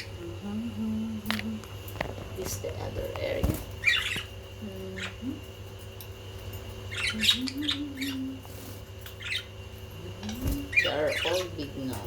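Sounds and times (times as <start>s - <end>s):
budgerigars chirping: 3.8s - 4.4s, 6.9s - 8.2s, 9.0s - 9.6s, 10.3s - 12.0s.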